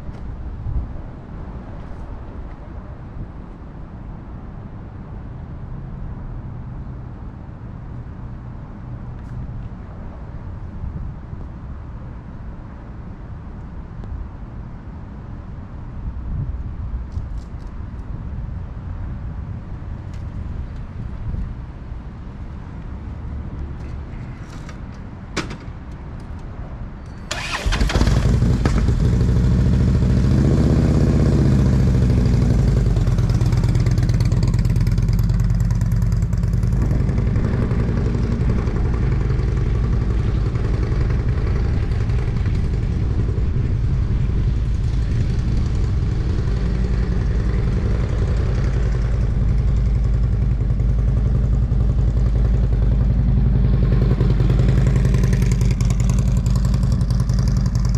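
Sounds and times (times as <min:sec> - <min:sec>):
motorcycle engine starting and running: 0:27.3 - 0:57.9.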